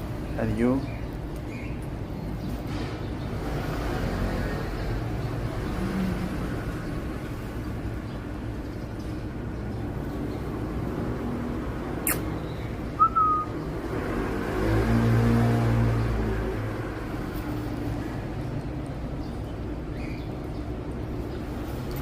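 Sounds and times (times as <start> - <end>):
sharp click: 12.0 - 12.3.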